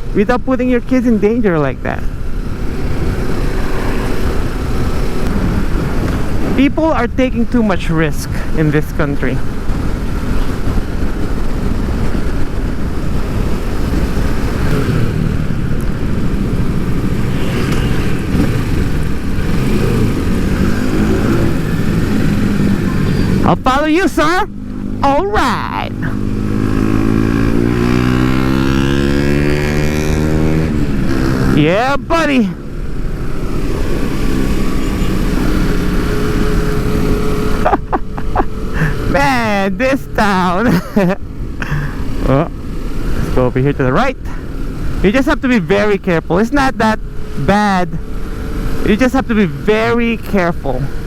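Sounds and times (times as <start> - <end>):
wind and road noise: 0.0 - 51.0
motorcycle engine running: 8.4 - 46.3.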